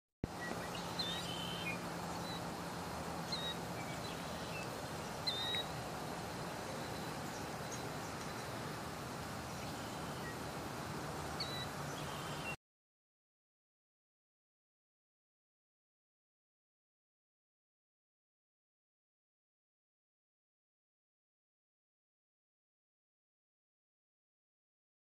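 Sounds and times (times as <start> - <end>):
outdoor background hiss: 0.2 - 12.6
short high bird chirps: 0.4 - 2.4, 3.3 - 5.7.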